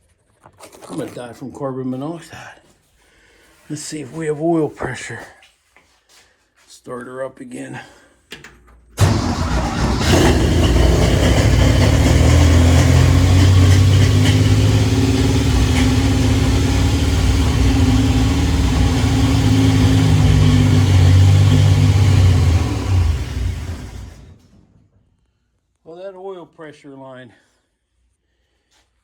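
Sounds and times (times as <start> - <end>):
engine running: 9.0 - 24.5.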